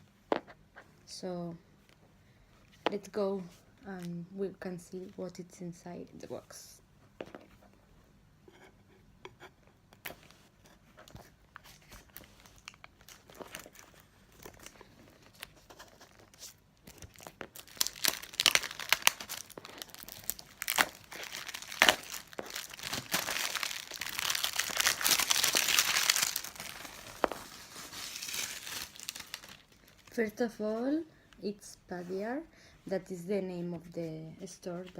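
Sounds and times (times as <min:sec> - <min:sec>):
wrapping crinkling and tearing: 0:11.0 - 0:30.2.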